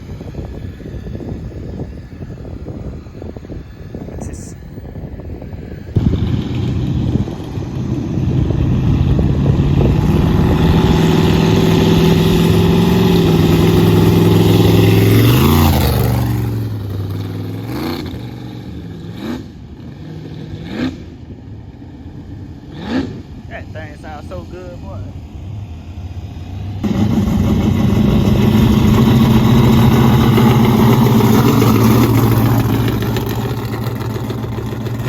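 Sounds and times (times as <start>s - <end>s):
vehicle engine revving: 6.0s - 21.3s, 22.6s - 25.0s, 25.6s - 35.0s.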